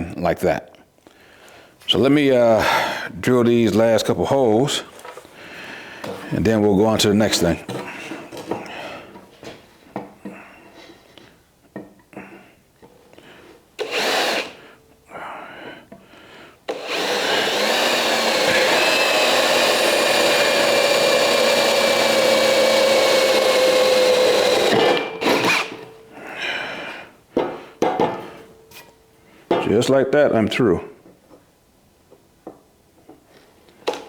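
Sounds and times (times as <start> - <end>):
electric drill boring steel: 13.8 - 14.6, 16.7 - 25.8
drill stopping clunk: 16.7 - 25.8.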